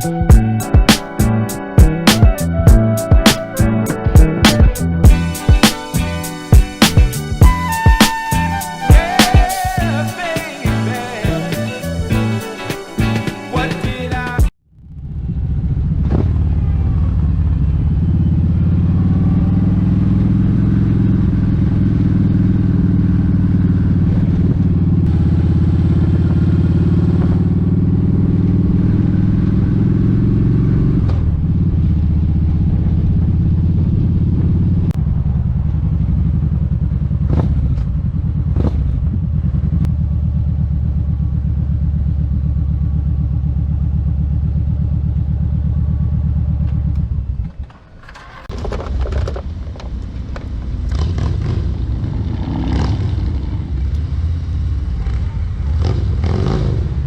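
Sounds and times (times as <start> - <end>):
motorcycle engine running: 13.9 - 57.0.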